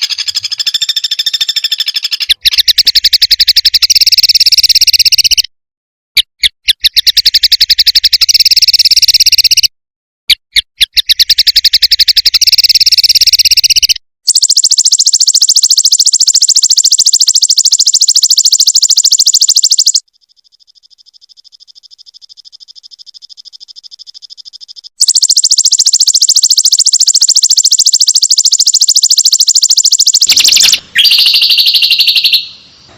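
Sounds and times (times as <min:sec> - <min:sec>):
bird trilling: 0:00.0 - 0:05.4, 0:25.0 - 0:32.9.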